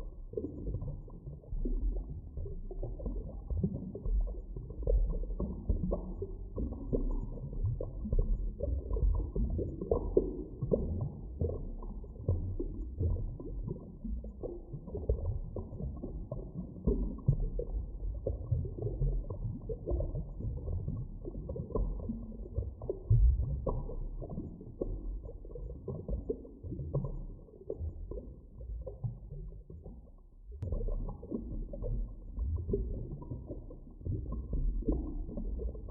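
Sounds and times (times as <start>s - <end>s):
underwater rumbling wash: 12.3s - 35.9s.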